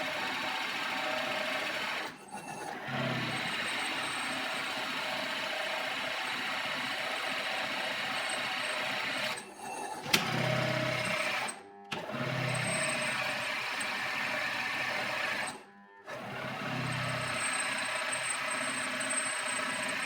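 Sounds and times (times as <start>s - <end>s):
small power tool running: 0.0s - 20.0s.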